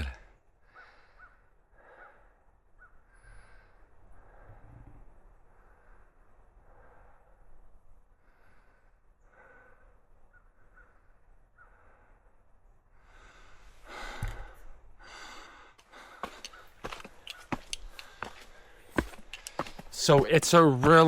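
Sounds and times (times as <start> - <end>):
person breathing close to microphone: 13.0 - 17.2
sharp clicks: 16.4 - 18.2, 19.2 - 19.8.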